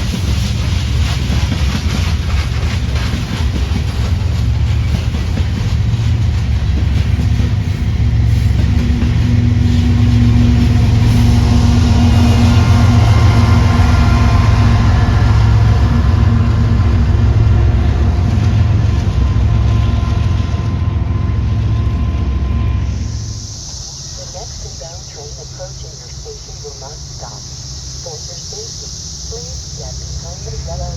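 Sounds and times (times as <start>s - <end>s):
diesel train engine rumbling: 0.0s - 30.9s.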